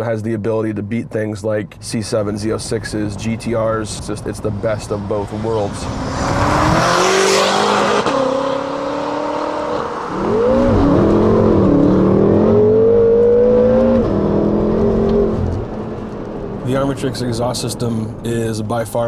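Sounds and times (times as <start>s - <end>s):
car engine accelerating hard: 2.1s - 19.0s.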